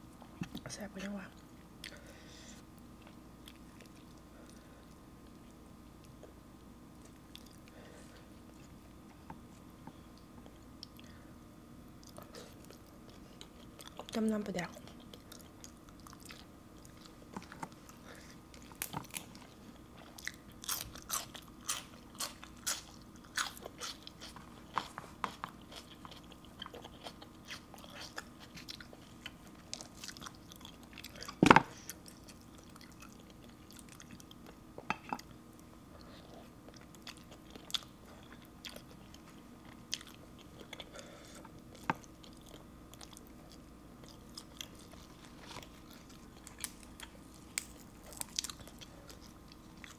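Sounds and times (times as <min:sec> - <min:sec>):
crisp wet chewing crunches: 0:41.6 - 0:49.9.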